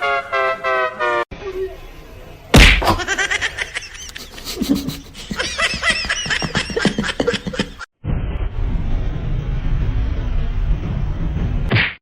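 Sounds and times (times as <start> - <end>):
loud thump: 2.6 - 3.0
person laughing hard: 2.9 - 7.9.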